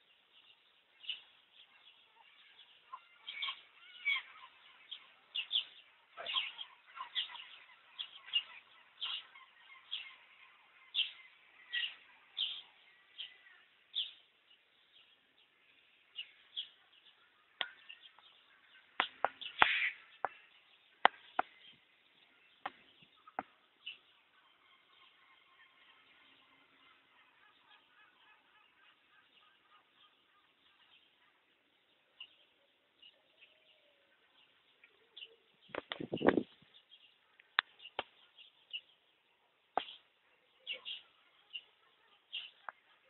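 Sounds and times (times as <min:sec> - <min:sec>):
birds chirping: 0:00.0 - 0:43.0
sharp clicks or taps: 0:19.0 - 0:20.4.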